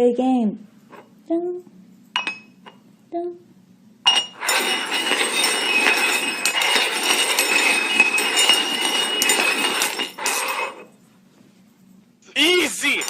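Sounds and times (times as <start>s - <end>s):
cups clinking: 2.2s - 2.9s, 4.1s - 10.9s, 12.4s - 13.0s
cups scraping on hard surface: 4.1s - 11.0s.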